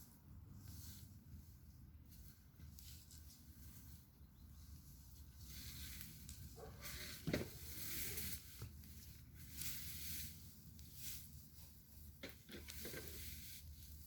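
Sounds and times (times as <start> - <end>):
campfire crackling and hissing: 5.2 - 14.0.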